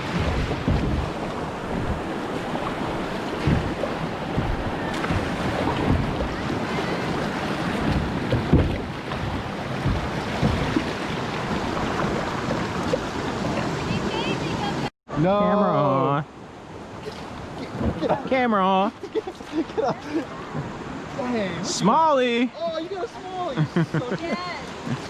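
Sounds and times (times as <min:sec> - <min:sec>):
low thuds: 0:00.0 - 0:13.6
wind buffeting the microphone: 0:00.0 - 0:14.9
river water rushing: 0:00.0 - 0:25.0.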